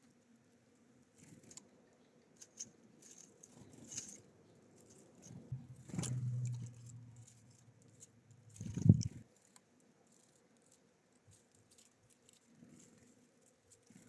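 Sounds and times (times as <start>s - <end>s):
birds pecking at seed feeder: 1.1s - 14.0s
low steady hum: 5.3s - 9.3s.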